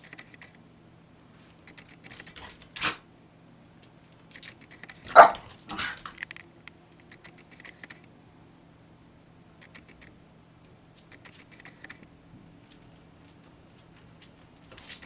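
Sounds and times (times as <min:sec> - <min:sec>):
rapid clicking: 0:00.0 - 0:00.6, 0:01.7 - 0:02.6, 0:04.3 - 0:08.1, 0:09.6 - 0:10.1, 0:11.0 - 0:12.1
dog barking: 0:05.1 - 0:06.0.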